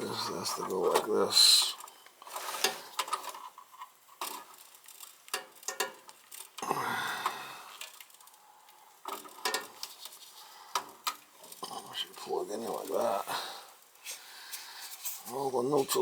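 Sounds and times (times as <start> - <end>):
rustle: 0.1 - 6.5, 9.0 - 13.3
clicks of wire connectors: 5.3 - 6.2, 9.0 - 9.9.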